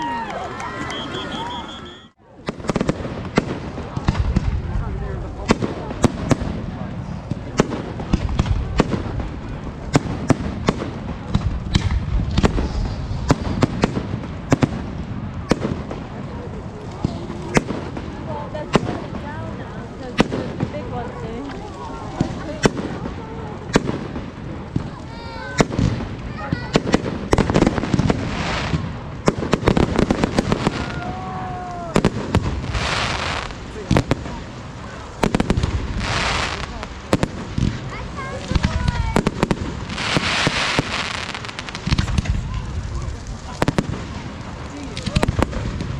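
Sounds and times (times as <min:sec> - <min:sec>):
fireworks bangs and cracks: 0:00.0 - 0:45.9
whistle falling in pitch: 0:00.6 - 0:02.2.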